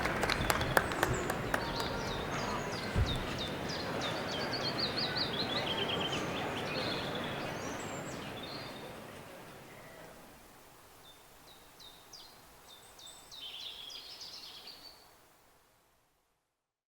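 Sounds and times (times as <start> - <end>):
background noise: 0.0 - 16.9
small birds singing: 0.2 - 9.0, 10.9 - 15.2.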